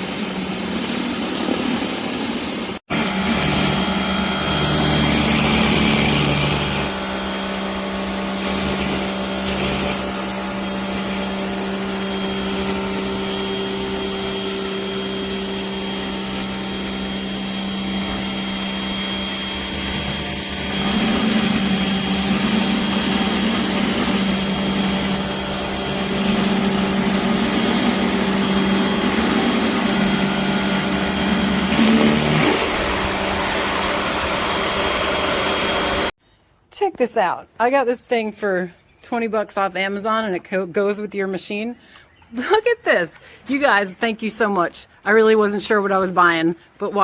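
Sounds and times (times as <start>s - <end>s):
pressure washer running: 0.0s - 36.2s.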